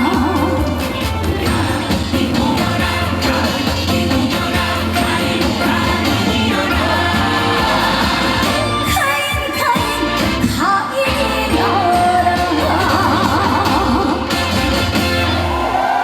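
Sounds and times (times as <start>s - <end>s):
band accompaniment with bass: 0.0s - 16.0s
woman singing: 5.6s - 14.3s.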